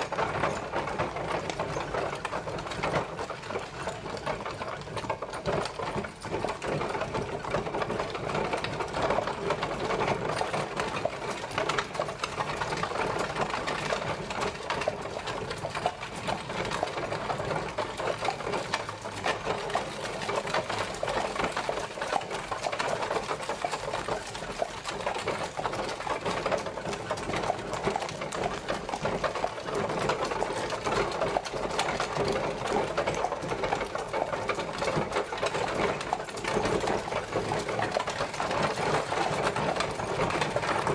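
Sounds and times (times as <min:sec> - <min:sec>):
horse-drawn carriage rattling: 0:00.0 - 0:40.9.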